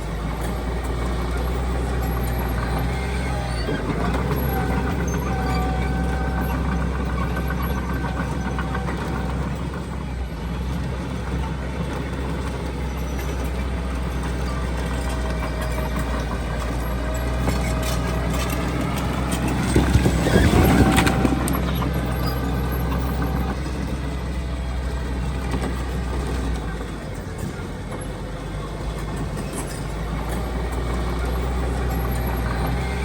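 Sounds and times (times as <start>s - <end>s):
heavy diesel machinery droning: 0.0s - 33.0s
machinery clanking: 0.0s - 33.0s.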